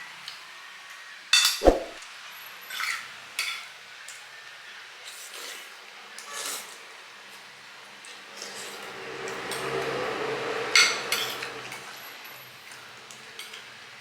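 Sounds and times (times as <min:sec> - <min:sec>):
utensils clinking against dishes: 0:01.4 - 0:01.6, 0:02.7 - 0:04.2, 0:05.0 - 0:06.9, 0:08.0 - 0:13.8.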